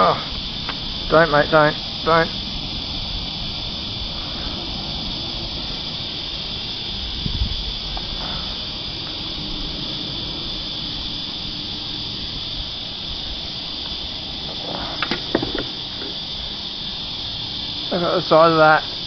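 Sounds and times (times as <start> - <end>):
cicada chorus drone: 0.0 - 19.0
sharp clicks and knocks: 14.7 - 16.2
low thump: 15.0 - 16.2.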